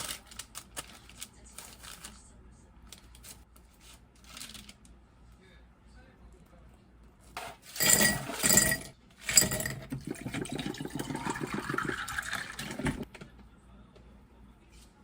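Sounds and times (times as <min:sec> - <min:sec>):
glass clinking: 0:07.8 - 0:12.7
liquid pouring into glass: 0:09.3 - 0:13.0.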